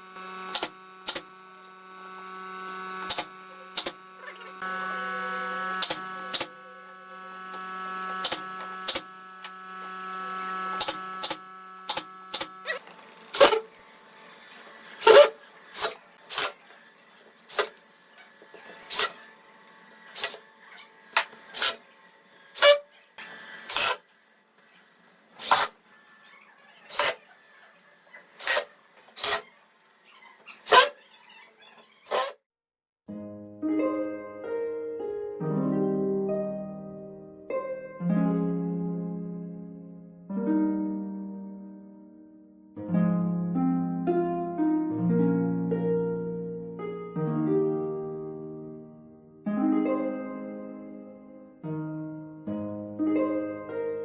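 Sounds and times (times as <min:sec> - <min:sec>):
motor humming: 0:00.0 - 0:32.4.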